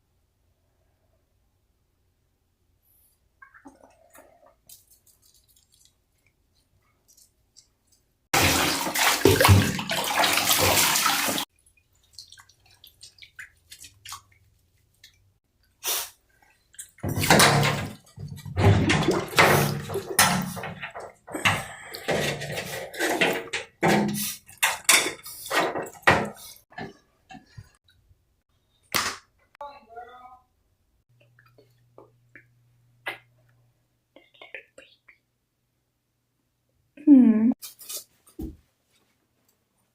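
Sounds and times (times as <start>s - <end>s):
water splashing and sloshing: 3.4s - 27.8s
water running into bathtub: 8.3s - 27.5s.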